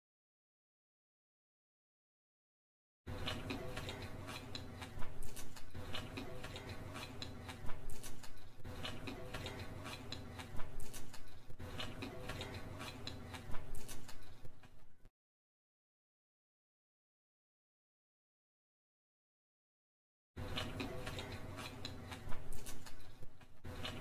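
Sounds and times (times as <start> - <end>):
chewing and wet mouth sounds: 3.1 - 15.0, 20.4 - 24.0.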